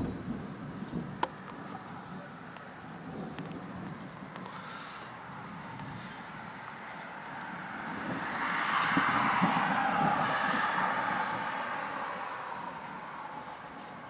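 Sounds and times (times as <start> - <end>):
vehicle passing by: 4.2 - 14.0.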